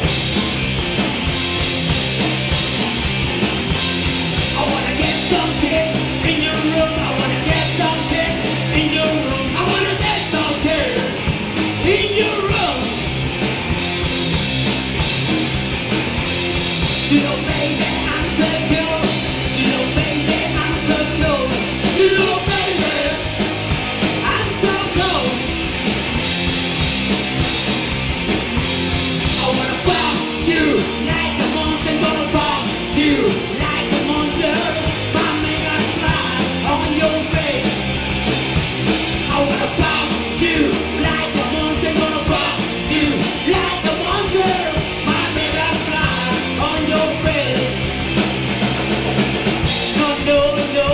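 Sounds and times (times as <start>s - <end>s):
punk rock band playing live: 0.0s - 50.9s
person singing: 4.5s - 11.2s, 17.1s - 23.3s, 24.2s - 25.5s, 29.3s - 37.8s, 39.3s - 47.7s.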